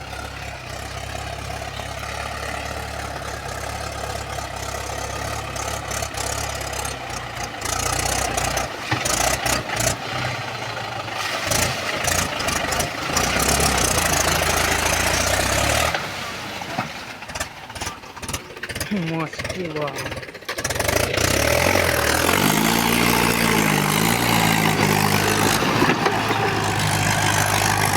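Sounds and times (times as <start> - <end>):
tractor diesel engine running: 0.0 - 27.9
sharp engine knocks: 16.7 - 22.5, 23.5 - 27.9.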